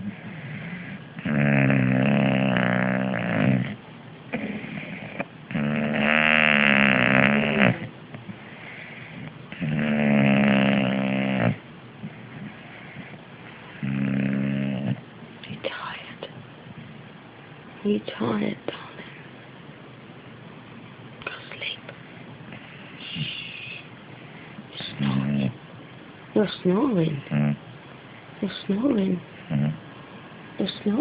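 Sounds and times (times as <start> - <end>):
dog breathing softly: 0.0 - 1.2, 2.4 - 5.3, 8.2 - 9.4, 10.8 - 15.0
dog snoring: 0.0 - 7.9, 8.5 - 15.0, 24.8 - 25.6, 27.2 - 27.6, 29.4 - 29.8.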